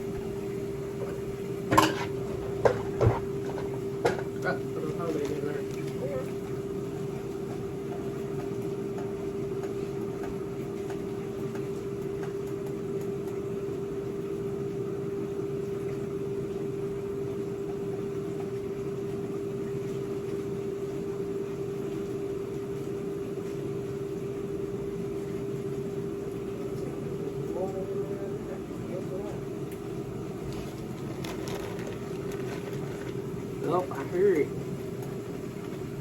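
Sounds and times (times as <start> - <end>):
kitchen appliance motor humming: 27.0 - 36.0.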